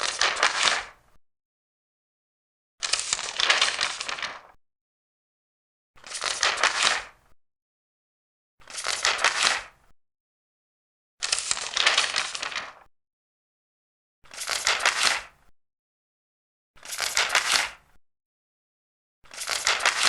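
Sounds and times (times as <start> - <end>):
paper pages turning: 0.0 - 1.0, 2.8 - 4.6, 6.0 - 7.2, 8.6 - 9.7, 11.2 - 12.9, 14.3 - 15.3, 16.8 - 17.8, 19.3 - 20.0.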